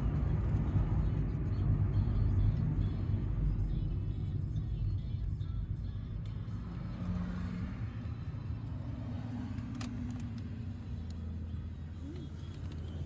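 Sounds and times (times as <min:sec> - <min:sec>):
car engine rumble: 0:00.0 - 0:13.0
road noise: 0:00.0 - 0:13.0.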